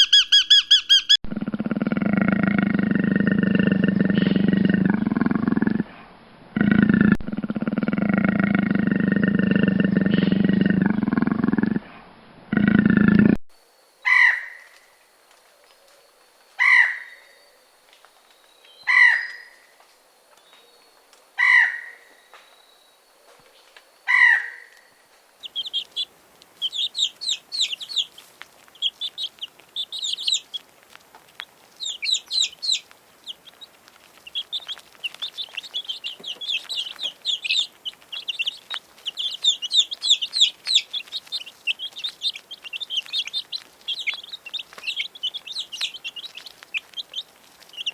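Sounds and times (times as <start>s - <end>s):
rapid high peeps and chirps: 0.0s - 1.2s, 25.3s - 30.8s, 31.6s - 47.9s
chickens calling loudly: 0.0s - 2.2s, 25.4s - 47.9s.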